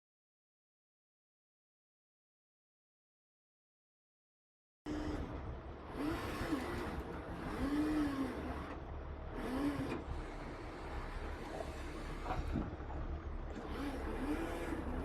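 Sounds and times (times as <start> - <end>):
heavy truck engine rumble: 4.9 - 15.0.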